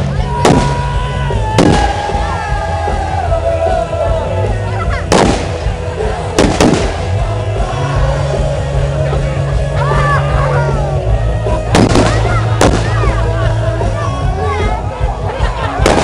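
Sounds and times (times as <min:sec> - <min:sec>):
music with low drone: 0:00.0 - 0:16.0
firecrackers banging: 0:00.4 - 0:02.4, 0:05.1 - 0:07.2, 0:11.6 - 0:13.2, 0:15.8 - 0:16.0.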